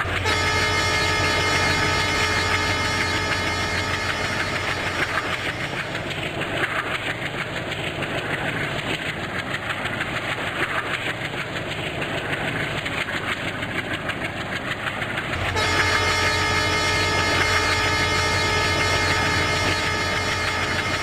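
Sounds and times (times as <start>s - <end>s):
train horn blast: 0.0s - 6.0s, 15.3s - 21.0s
train rail clatter: 0.0s - 21.0s.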